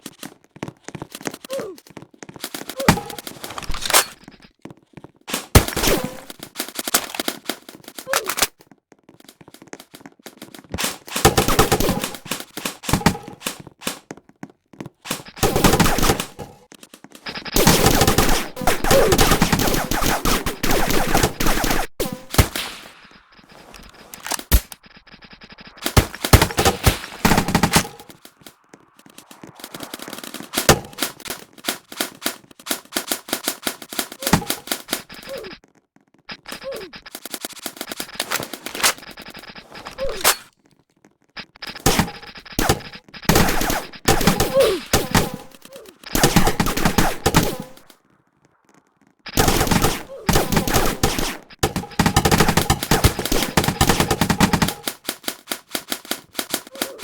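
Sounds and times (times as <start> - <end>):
airsoft guns firing bursts: 5.3 - 8.5, 10.8 - 14.0, 15.1 - 16.6, 17.2 - 35.6, 36.3 - 40.3, 41.4 - 47.9, 49.3 - 57.0.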